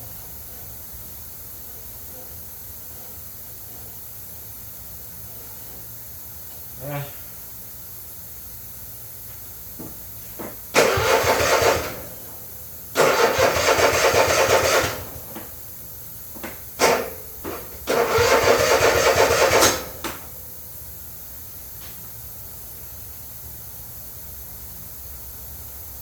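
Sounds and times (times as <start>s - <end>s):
electric starter cranking engine: 10.4s - 15.6s, 16.7s - 20.4s.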